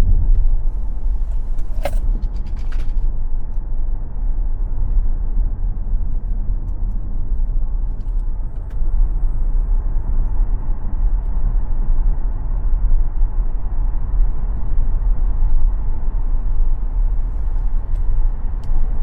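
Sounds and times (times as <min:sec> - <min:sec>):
tyre and road rumble: 0:00.0 - 0:03.5.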